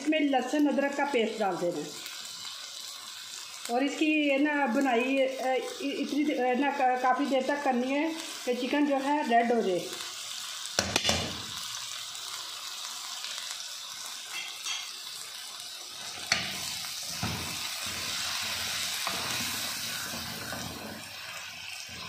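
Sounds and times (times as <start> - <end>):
chicken and onion sizzling in oil: 0.0 - 22.0
wooden spoon stirring in pot: 17.5 - 22.0.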